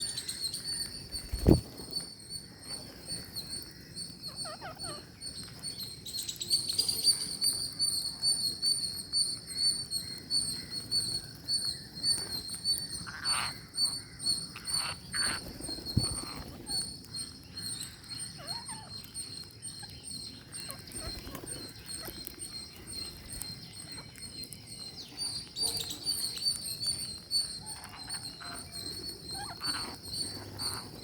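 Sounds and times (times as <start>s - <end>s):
parrots chirping: 4.3s - 5.6s, 12.5s - 16.9s, 17.8s - 24.2s, 24.8s - 31.0s.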